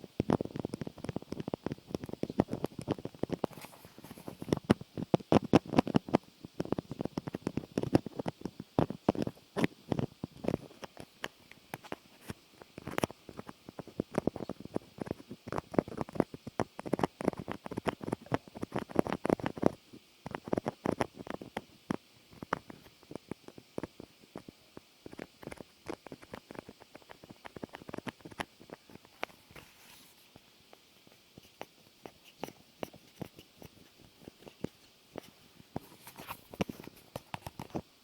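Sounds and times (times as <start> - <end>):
clicking and scratching taps: 0.2 - 30.0, 31.4 - 37.8.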